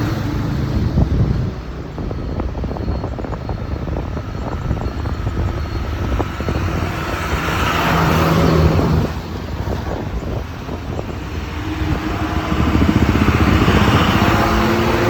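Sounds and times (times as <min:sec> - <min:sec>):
passing vehicle: 0:00.0 - 0:15.0
scooter engine and road rumble: 0:00.0 - 0:15.0.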